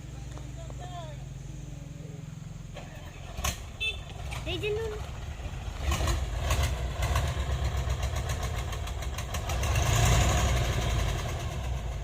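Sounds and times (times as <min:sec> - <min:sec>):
truck diesel engine knocking: 0:04.1 - 0:12.0.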